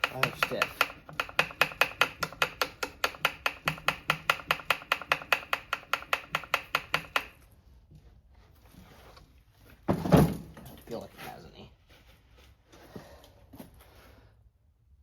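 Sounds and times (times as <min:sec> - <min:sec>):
chainsaw chain clicking: 0:00.0 - 0:07.3.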